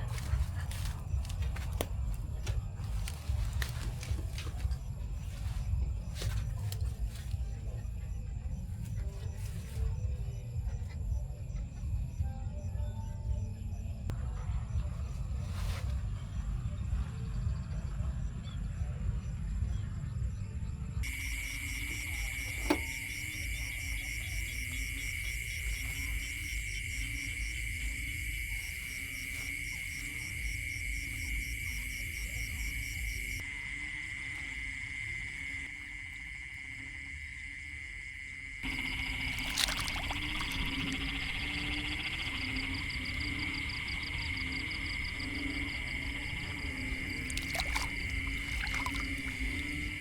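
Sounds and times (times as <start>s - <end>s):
low rumbling background: 0.0s - 33.4s, 38.6s - 50.0s
insects trilling: 15.4s - 50.0s.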